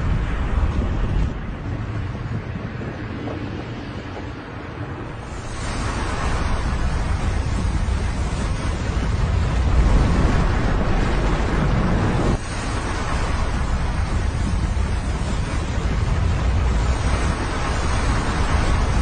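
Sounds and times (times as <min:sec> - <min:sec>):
wind on microphone: 0:00.0 - 0:19.0
river of slushy water rushing: 0:05.0 - 0:19.0.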